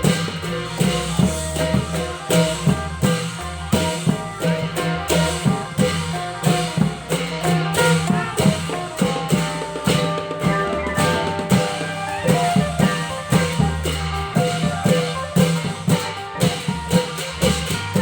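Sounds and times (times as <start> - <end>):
long drum ensemble playing: 0.0 - 18.0
ringing metal notes: 9.8 - 16.2.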